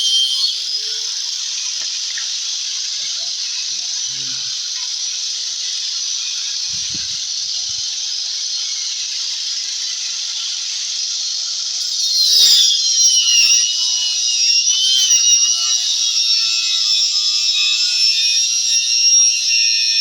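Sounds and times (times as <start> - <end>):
electric saw cutting wood: 0.0 - 1.4, 11.8 - 20.0.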